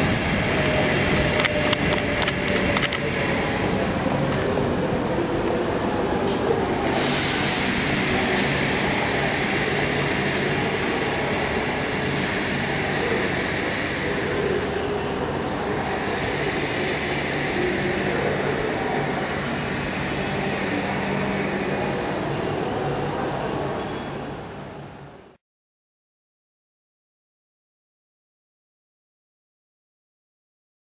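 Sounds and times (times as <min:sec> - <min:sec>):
electric train humming and rushing: 0:00.0 - 0:25.4
hiss: 0:06.8 - 0:10.6.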